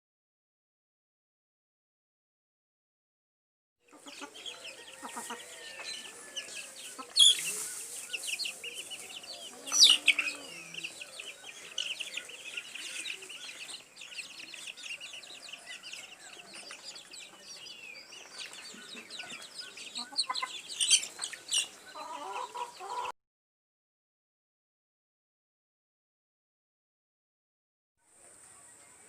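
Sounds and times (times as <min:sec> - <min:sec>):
chorus of bird calls: 0:03.8 - 0:23.2, 0:28.1 - 0:29.0.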